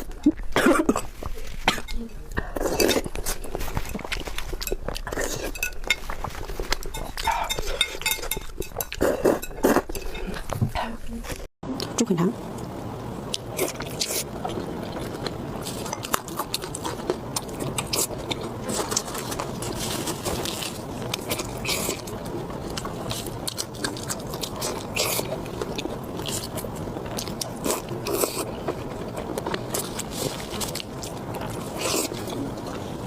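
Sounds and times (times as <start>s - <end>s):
person chewing food: 0.0s - 10.7s, 13.3s - 33.0s.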